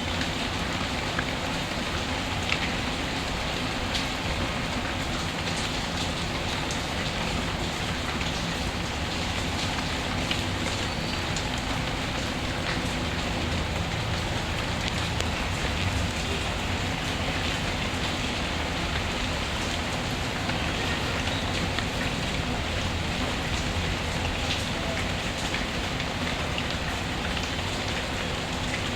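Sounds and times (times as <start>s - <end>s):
steady rain falling: 0.0s - 28.9s.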